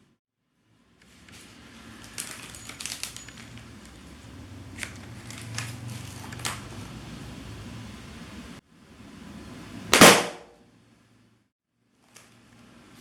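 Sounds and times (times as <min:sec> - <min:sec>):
handling clicks and rustles: 0:01.3 - 0:07.2.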